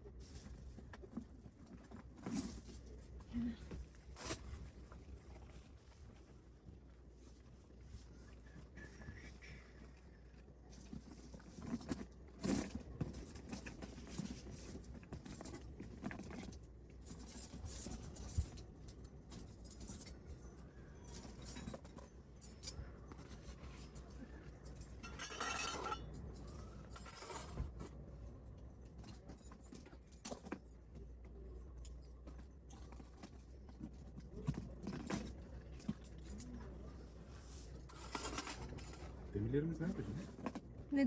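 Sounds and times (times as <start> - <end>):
camping gear clinking and rustling: 0.0 - 41.0
rustling scrape: 37.0 - 40.6.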